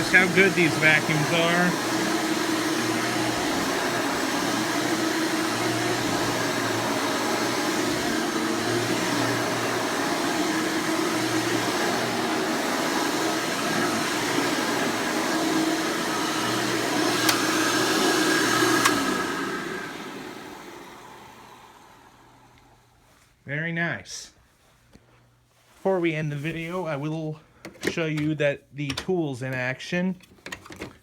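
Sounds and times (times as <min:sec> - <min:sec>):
upright vacuum running: 0:00.0 - 0:23.1.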